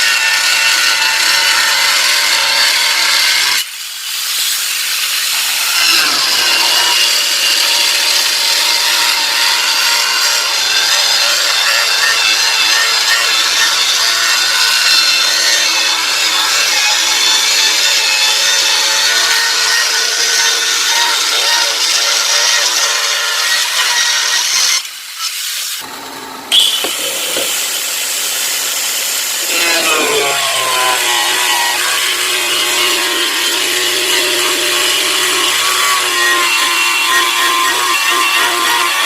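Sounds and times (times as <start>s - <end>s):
tile cutter sawing plywood: 5.4s - 24.4s, 26.6s - 39.0s.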